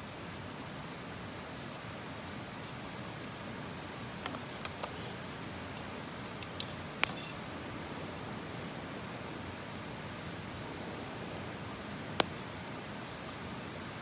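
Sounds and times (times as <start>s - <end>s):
campfire hissing: 0.1s - 14.0s
campfire pops: 6.4s - 9.2s, 10.1s - 12.5s
sharp crack of fire: 6.9s - 12.6s.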